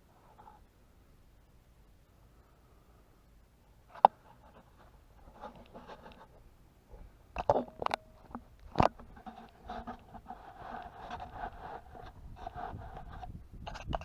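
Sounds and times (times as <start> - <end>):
faint rustling: 3.8 - 14.0.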